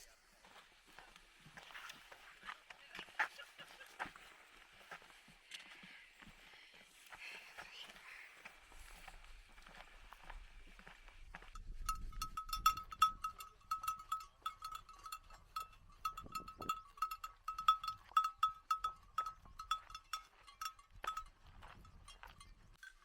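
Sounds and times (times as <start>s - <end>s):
livestock bell clanking: 11.3s - 23.0s.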